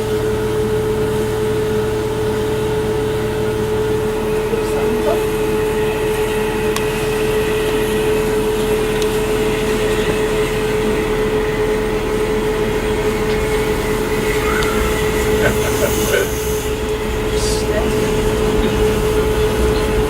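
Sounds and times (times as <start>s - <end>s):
constant hum: 0.0s - 20.0s
train carriage rumble: 0.0s - 20.0s.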